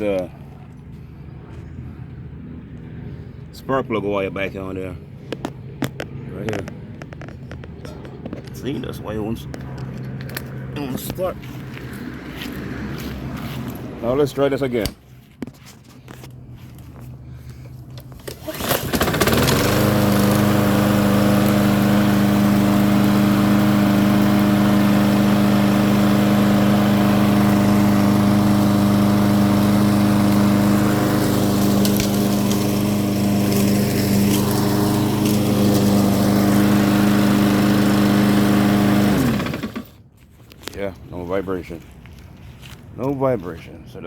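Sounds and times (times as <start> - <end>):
lawn mower engine running: 16.1 - 40.1.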